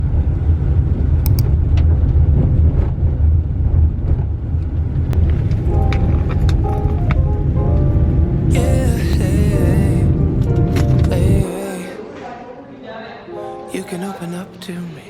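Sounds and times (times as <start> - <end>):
light clicks: 1.3 - 1.5
music: 5.2 - 12.6, 13.3 - 15.0.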